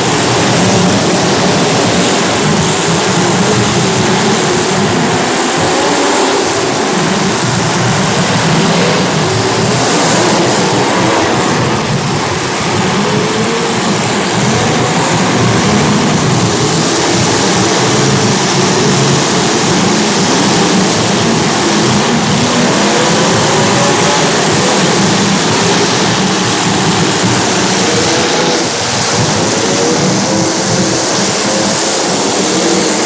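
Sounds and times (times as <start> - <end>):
race car engines roaring: 0.0 - 33.0.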